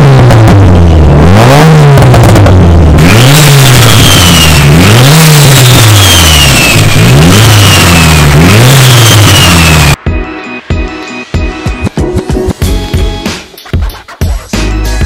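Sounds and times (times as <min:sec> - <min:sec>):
car engine revving loudly: 0:00.0 - 0:10.0.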